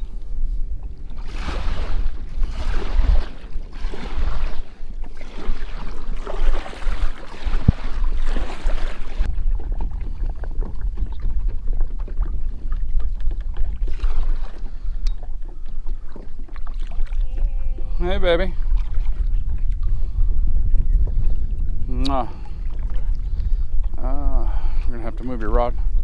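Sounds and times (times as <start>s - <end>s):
water splashing around kayak: 0.0s - 26.0s
wind buffeting microphone: 0.0s - 26.0s.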